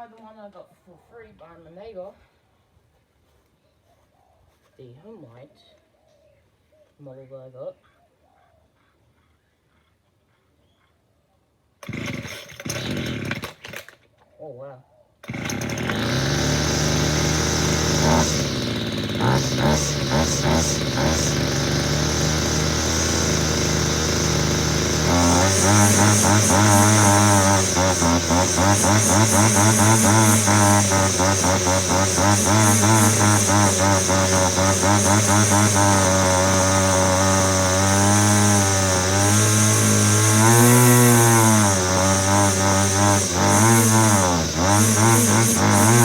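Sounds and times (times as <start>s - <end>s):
string trimmer engine running: 11.8s - 14.0s, 15.2s - 46.0s.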